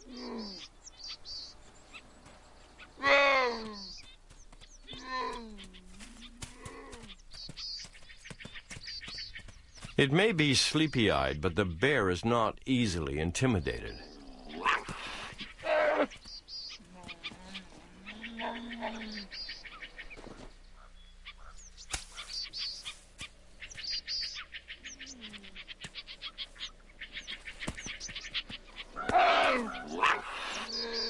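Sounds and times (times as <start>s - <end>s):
birds chirping and trilling: 0.0s - 31.0s
harsh loud animal sounds: 13.9s - 16.2s, 29.0s - 31.0s.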